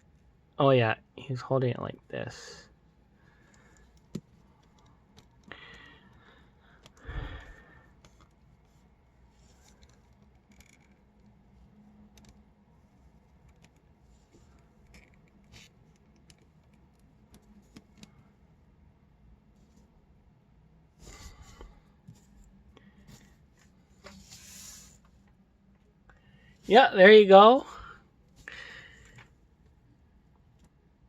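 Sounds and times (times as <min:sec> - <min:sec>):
plastic parts clicking and scraping: 0:09.5 - 0:11.3.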